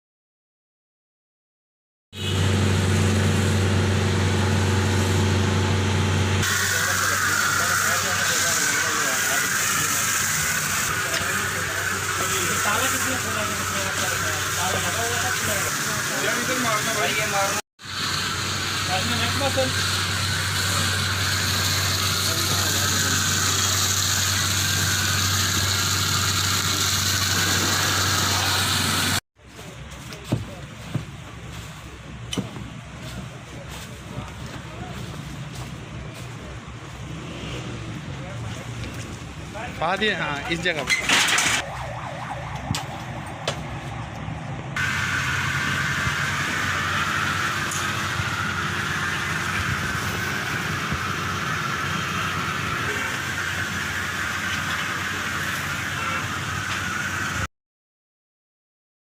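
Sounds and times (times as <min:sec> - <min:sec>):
engine humming: 0:02.2 - 0:16.9, 0:17.8 - 0:57.4
hiss: 0:06.4 - 0:16.6, 0:17.8 - 0:29.2.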